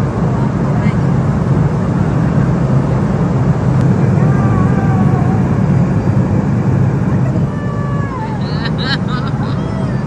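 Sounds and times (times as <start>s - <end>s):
jet cabin engine drone: 0.0s - 10.0s.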